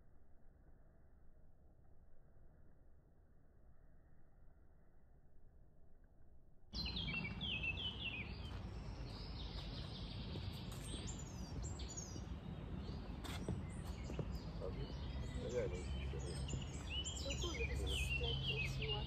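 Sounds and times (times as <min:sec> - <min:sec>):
woodland birds singing: 0:06.8 - 0:19.0.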